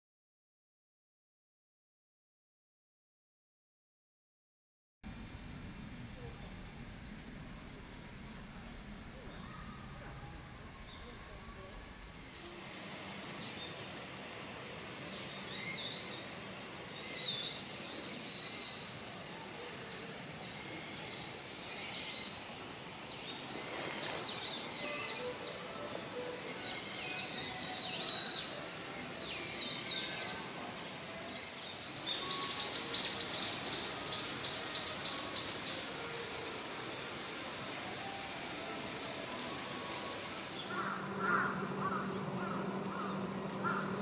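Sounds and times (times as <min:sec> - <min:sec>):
soft outdoor hiss: 0:05.0 - 0:44.0
wild birds calling: 0:40.5 - 0:44.0.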